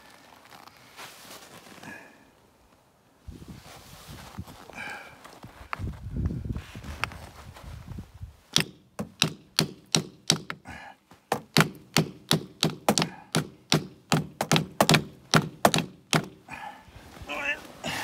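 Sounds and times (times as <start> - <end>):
hammer blows on wood: 8.5 - 16.6.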